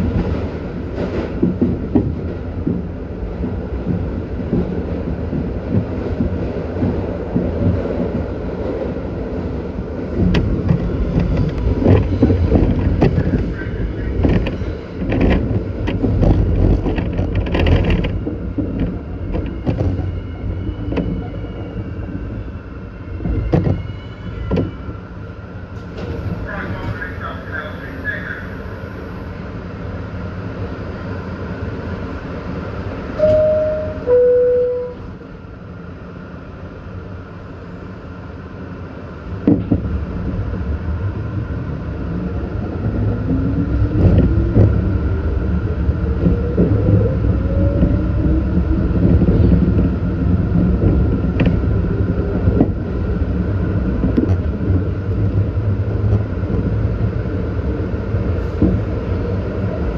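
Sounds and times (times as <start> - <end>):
two-note descending chime: 33.2 - 35.0.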